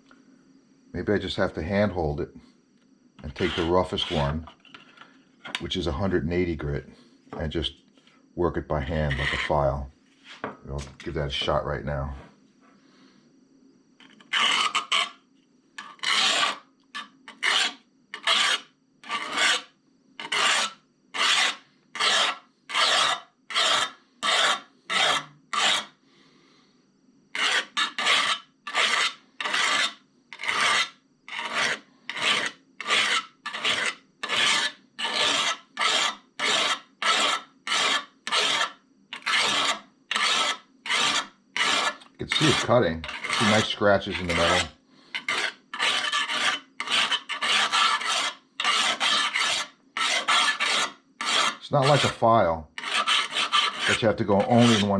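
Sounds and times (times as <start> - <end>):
hone rasping on steel blade: 3.3 - 4.4, 14.1 - 15.2, 15.8 - 26.0, 27.4 - 52.2, 52.8 - 54.9.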